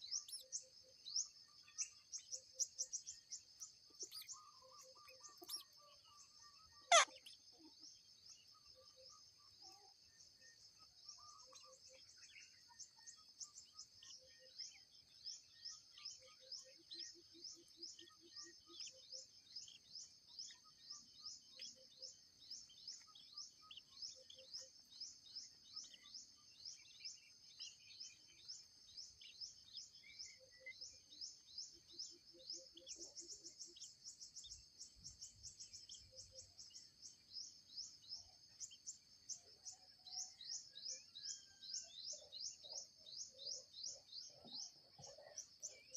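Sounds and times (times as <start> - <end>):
faint bird calls: 0.0 - 8.0
short repeated insect chirp: 0.0 - 45.9.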